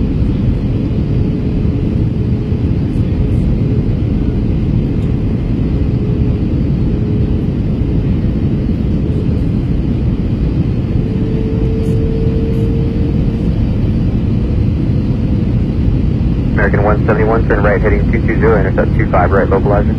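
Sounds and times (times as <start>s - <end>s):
jet engine cabin roar: 0.0s - 19.9s
faint steady hum: 16.5s - 19.9s.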